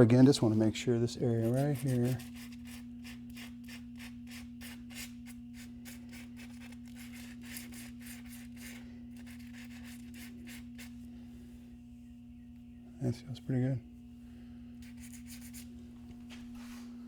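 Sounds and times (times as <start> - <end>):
sandpaper rubbing on metal wheel: 1.3 - 2.8.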